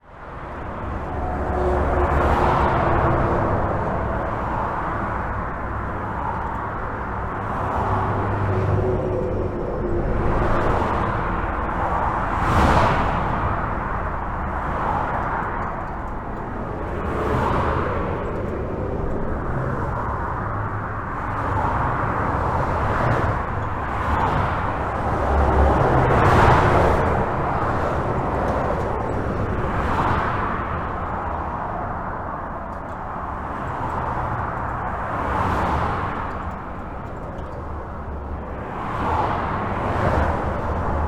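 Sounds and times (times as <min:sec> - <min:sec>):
cars and trucks passing: 0:00.0 - 0:41.0
highway traffic rushing: 0:00.0 - 0:41.0
deep rumble: 0:07.1 - 0:29.7.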